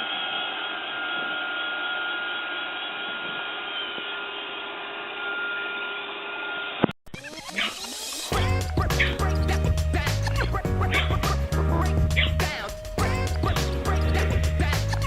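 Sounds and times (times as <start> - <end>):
robot vacuum cleaner whirring: 0.0 - 8.4.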